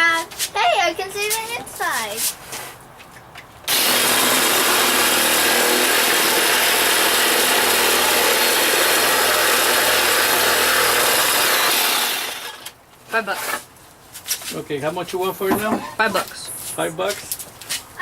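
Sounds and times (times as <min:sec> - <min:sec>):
chainsaw cutting plastic: 0:03.7 - 0:13.7.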